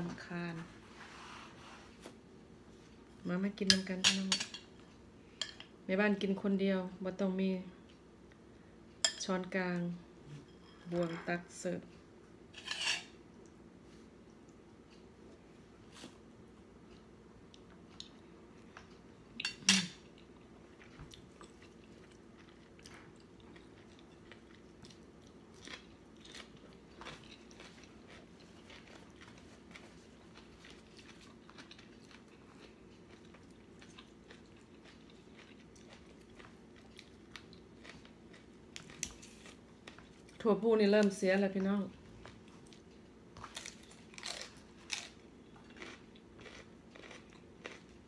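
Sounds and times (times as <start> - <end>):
faint steady hum: 0.0 - 48.0
person chewing and crunching food: 16.8 - 40.5, 42.0 - 48.0.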